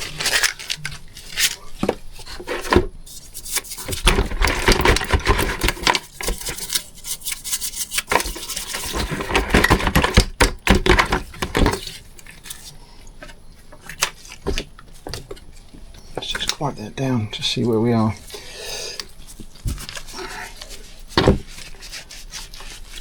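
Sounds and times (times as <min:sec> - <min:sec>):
scratchy scrubbing of metal: 0:02.2 - 0:09.8.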